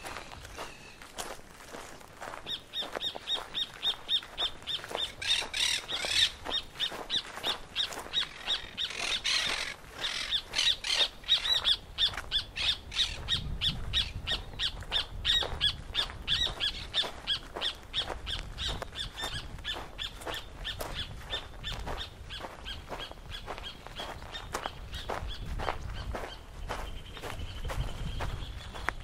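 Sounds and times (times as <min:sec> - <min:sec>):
coarse bird calls: 0:02.3 - 0:29.0.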